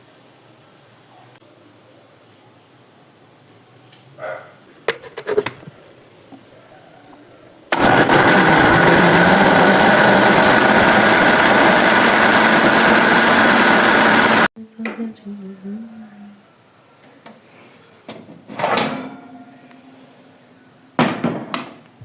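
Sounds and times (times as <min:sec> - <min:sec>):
blender motor running: 0:07.7 - 0:14.5.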